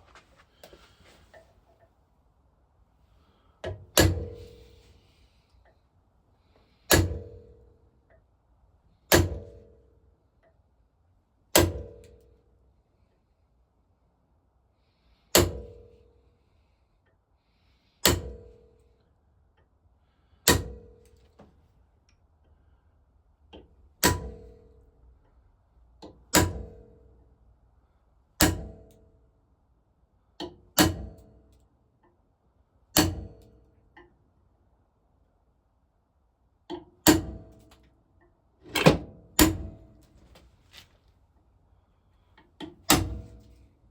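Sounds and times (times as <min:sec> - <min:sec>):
hammer striking metal punch: 0:33.0 - 0:33.4, 0:38.7 - 0:39.8, 0:42.9 - 0:43.4.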